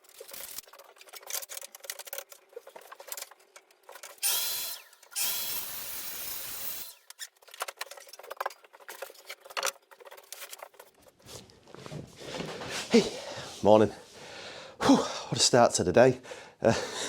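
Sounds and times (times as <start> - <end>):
clicks and knocks of handling tools: 0.0 - 4.2, 7.0 - 11.0
power tool motor whining: 4.2 - 7.2.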